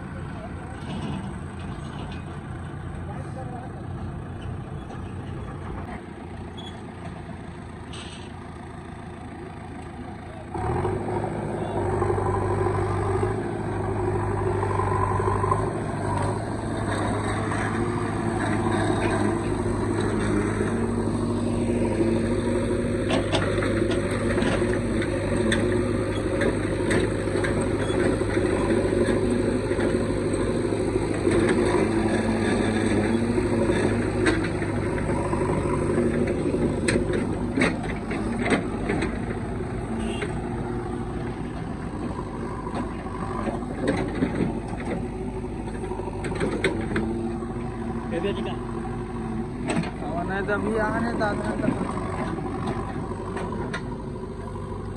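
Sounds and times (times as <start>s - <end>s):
heavy diesel engine running: 0.0s - 54.9s
sharp knocks and clanks: 16.0s - 30.5s.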